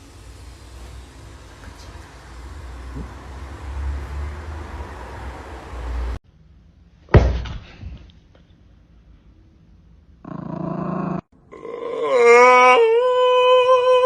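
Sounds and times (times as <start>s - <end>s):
low rumbling noise: 0.0s - 7.1s.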